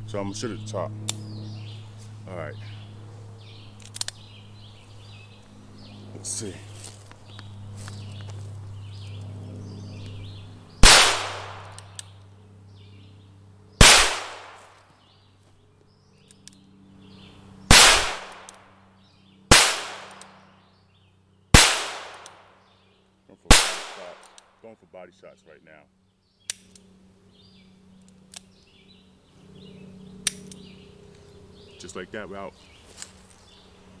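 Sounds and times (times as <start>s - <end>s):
gunshots with echo: 10.8s - 11.8s, 13.8s - 14.7s, 17.7s - 18.5s, 19.5s - 20.4s, 21.6s - 22.5s, 23.5s - 24.3s.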